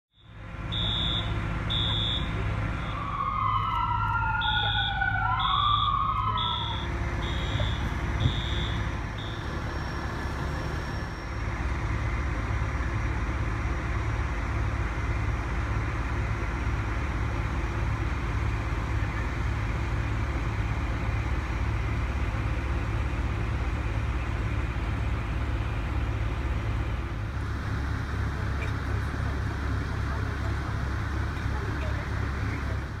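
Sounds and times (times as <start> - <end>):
low engine rumble: 0.1 - 33.0
siren wailing: 0.7 - 11.3.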